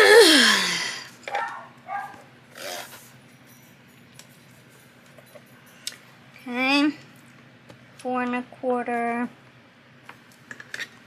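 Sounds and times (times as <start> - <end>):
person sneezing: 0.0 - 1.0.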